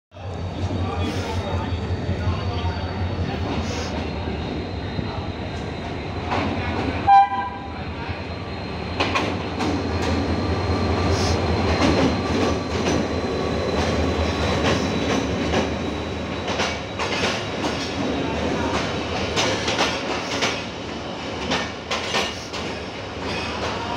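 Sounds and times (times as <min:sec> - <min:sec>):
diesel locomotive running: 0:00.2 - 0:23.9
train wheels clicking on rails: 0:05.4 - 0:07.0, 0:08.7 - 0:23.9
train horn blast: 0:07.0 - 0:07.7.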